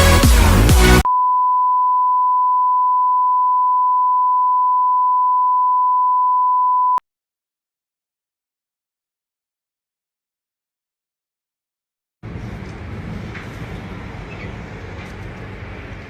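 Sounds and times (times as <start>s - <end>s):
electronic dance music: 0.0s - 1.1s
steady electronic beep tone: 1.1s - 7.0s.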